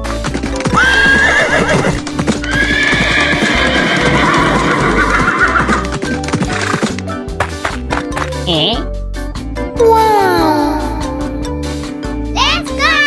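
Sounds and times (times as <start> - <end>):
hooves clip-clopping: 0.0 - 8.4
background music: 0.0 - 13.0
horse whinnying: 0.6 - 5.9.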